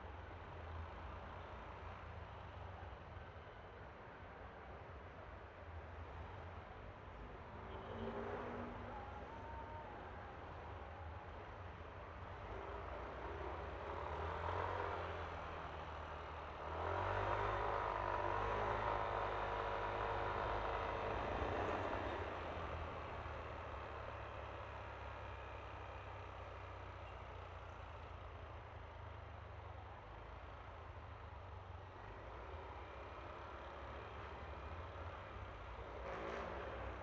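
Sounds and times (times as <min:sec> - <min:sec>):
road and wind noise: 0:00.0 - 0:37.0.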